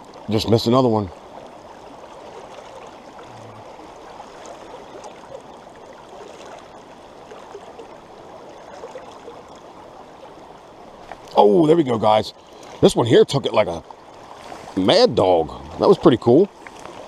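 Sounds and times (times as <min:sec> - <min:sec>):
mountain stream over rocks: 0:00.0 - 0:17.0.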